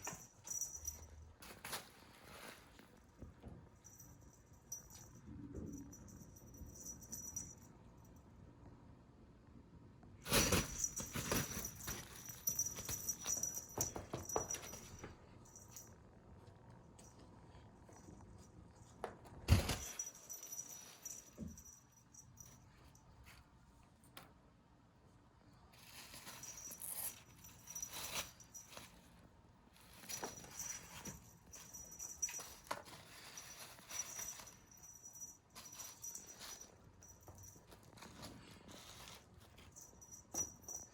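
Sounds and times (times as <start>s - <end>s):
cat scuffling with rattling toy: 0.0s - 3.1s, 10.2s - 15.8s, 19.4s - 21.7s, 25.8s - 40.9s
cat scrabbling and pouncing: 10.3s - 15.2s, 19.2s - 20.4s.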